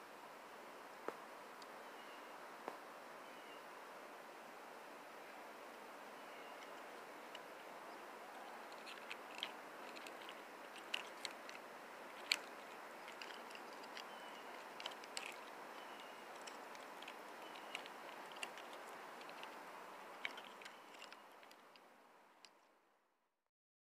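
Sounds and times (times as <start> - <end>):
faint steady hiss: 0.0 - 23.2
small parts clicking and snapping: 8.6 - 22.6.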